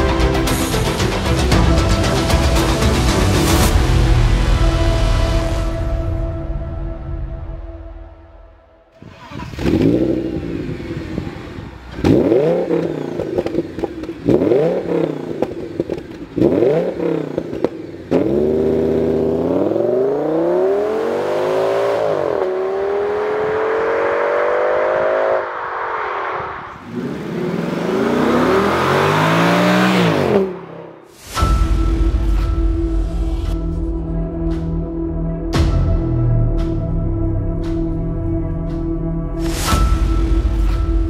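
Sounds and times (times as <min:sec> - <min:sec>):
exhaust cracks: 0:08.9 - 0:19.8
car engine revving: 0:08.9 - 0:31.2.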